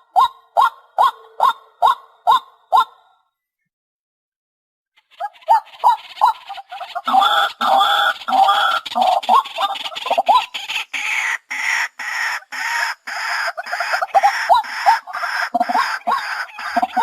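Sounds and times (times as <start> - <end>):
harsh clucking chatter: 5.0 - 17.0
waterhen calling: 5.0 - 17.0.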